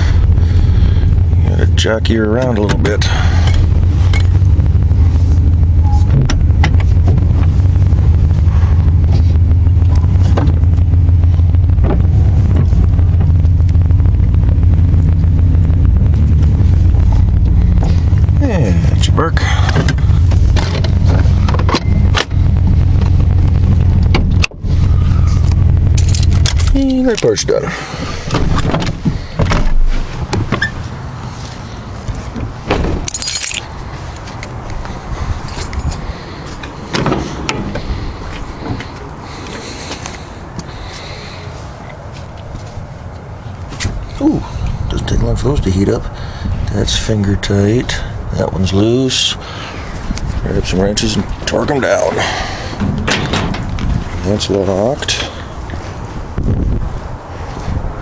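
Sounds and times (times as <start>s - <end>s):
engine clicks: 0.0s - 30.7s, 49.9s - 55.8s
truck engine low rumble: 0.0s - 58.0s
clunks: 5.7s - 7.6s, 19.4s - 23.2s, 27.9s - 30.9s, 35.5s - 40.7s, 52.3s - 54.2s
metallic jangle: 33.1s - 33.7s.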